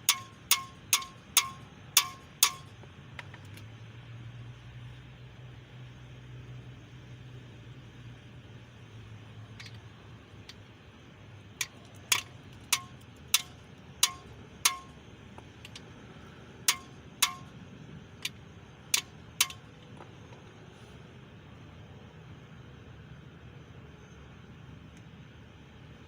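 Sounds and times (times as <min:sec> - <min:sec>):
metal tapping on engine part: 0:00.0 - 0:03.6, 0:11.6 - 0:15.9, 0:16.6 - 0:17.6, 0:18.2 - 0:20.4.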